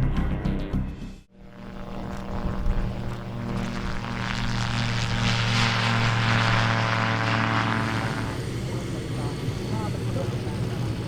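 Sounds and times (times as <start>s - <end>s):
autogyro engine and propeller: 1.4s - 11.0s.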